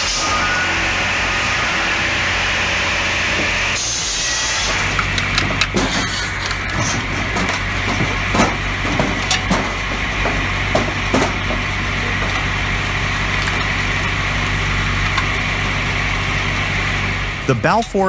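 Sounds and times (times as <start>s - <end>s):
wood-processing machine running: 0.0s - 18.0s
logs knocking and cracking: 4.7s - 16.8s.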